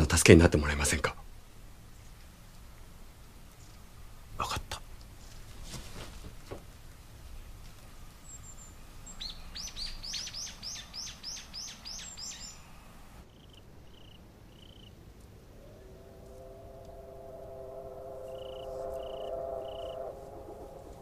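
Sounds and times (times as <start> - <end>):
bird chirping: 8.2 - 15.0, 15.6 - 21.0
steady held tones: 15.4 - 21.0.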